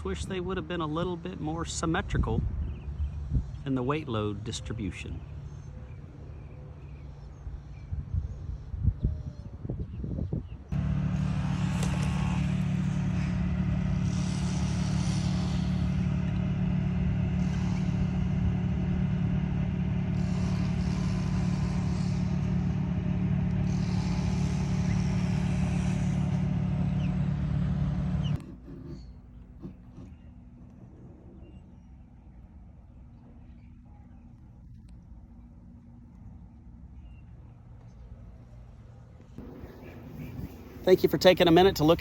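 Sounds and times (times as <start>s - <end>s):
motor vehicle humming: 10.7s - 42.0s.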